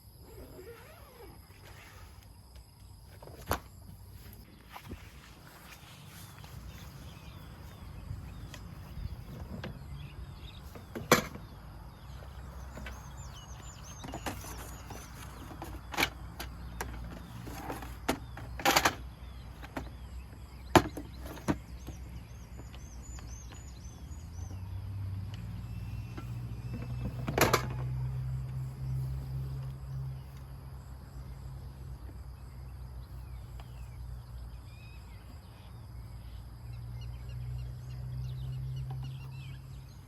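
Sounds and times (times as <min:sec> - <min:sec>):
faint high bird chirps: 0:00.0 - 0:03.2, 0:04.2 - 0:40.0
camping gear clatter: 0:00.2 - 0:24.6, 0:25.6 - 0:28.8
camping gear knocks and clacks: 0:05.6 - 0:23.8, 0:26.0 - 0:28.1.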